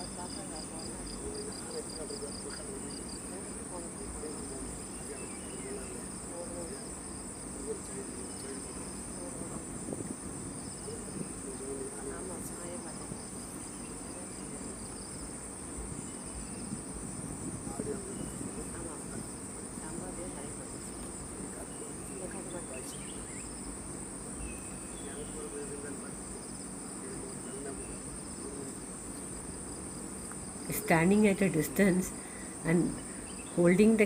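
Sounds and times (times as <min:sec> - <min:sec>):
chorus of forest insects: 0:00.0 - 0:34.0.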